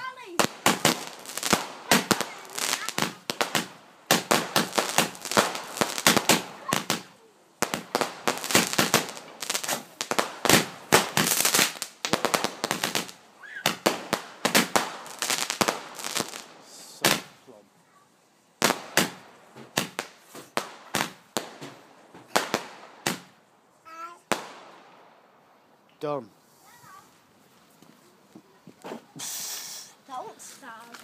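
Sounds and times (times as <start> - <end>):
fireworks bangs: 0.0 - 17.4, 18.6 - 23.4, 24.0 - 25.2.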